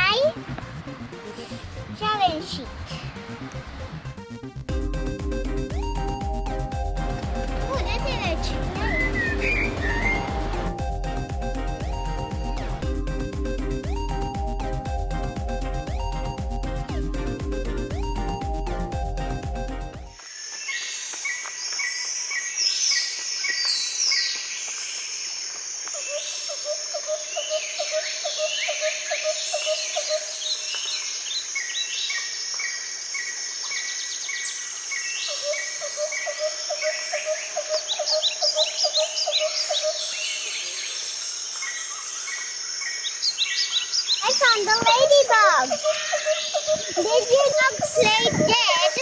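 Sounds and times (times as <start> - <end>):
background music: 0.0 - 20.2
wild birds singing: 4.8 - 19.4, 20.2 - 49.0
bird trilling: 7.5 - 10.8, 43.4 - 49.0.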